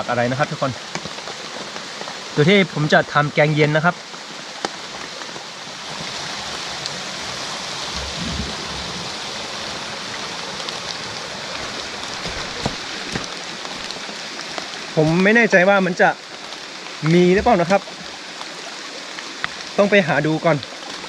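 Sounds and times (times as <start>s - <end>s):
heavy rain: 0.0s - 21.0s
low rumble: 7.9s - 9.2s.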